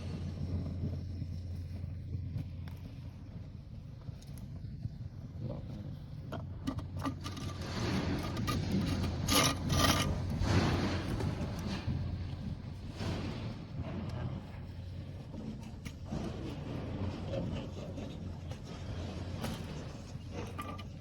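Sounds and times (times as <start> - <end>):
steady low hum: 0.0 - 21.0
scraping and rubbing: 6.6 - 12.3, 19.6 - 21.0.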